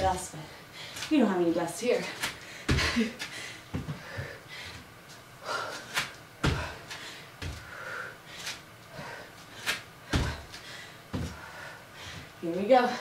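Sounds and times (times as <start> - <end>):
thuds on a floor mat: 6.4 - 6.8, 10.1 - 10.5.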